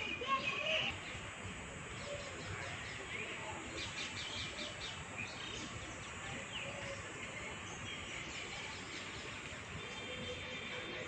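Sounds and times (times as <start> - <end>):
outdoor background noise: 0.0 - 11.0
small birds chirping: 0.0 - 11.0.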